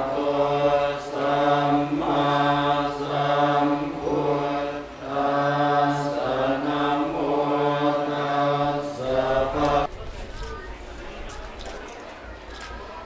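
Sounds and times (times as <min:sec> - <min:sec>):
group of low voices chanting: 0:00.0 - 0:09.9.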